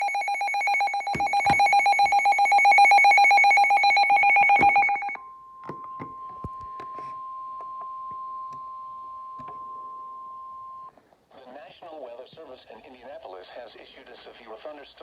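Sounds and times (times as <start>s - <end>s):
pulsing electronic alarm: 0.0s - 10.9s
steady single-pitch alert tone: 0.0s - 10.9s.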